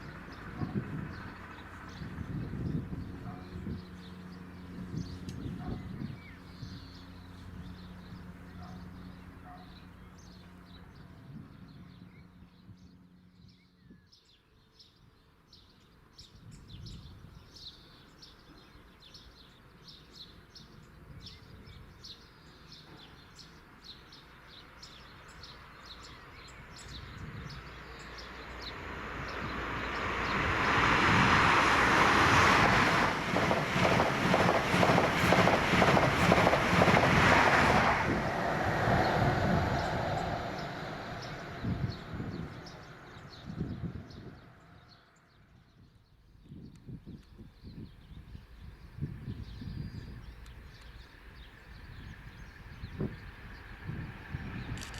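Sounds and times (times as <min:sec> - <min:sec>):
train passing at speed: 0:00.0 - 0:09.5, 0:25.7 - 0:45.4, 0:49.9 - 0:54.9
train engine hum: 0:00.0 - 0:13.4, 0:25.2 - 0:45.5, 0:48.3 - 0:54.9
birds singing: 0:00.0 - 0:30.8, 0:32.7 - 0:54.9.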